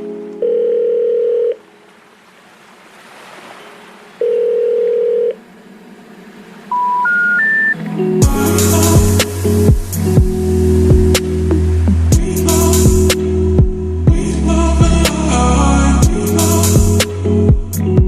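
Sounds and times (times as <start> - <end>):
music: 0.0 - 0.8, 7.6 - 18.0
rising telephone beeps: 4.2 - 5.4, 6.7 - 7.8
ringback tone purrs: 4.2 - 14.2.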